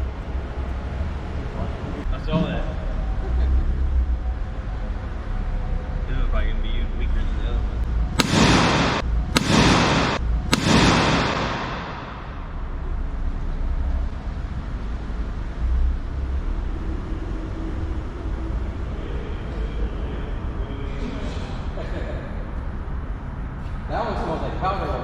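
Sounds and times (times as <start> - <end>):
sharp pyrotechnic blasts: 8.1 - 13.2.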